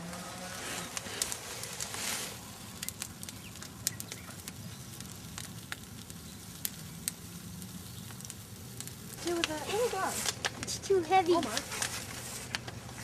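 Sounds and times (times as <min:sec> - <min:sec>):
bonfire crackling: 0:00.0 - 0:13.0.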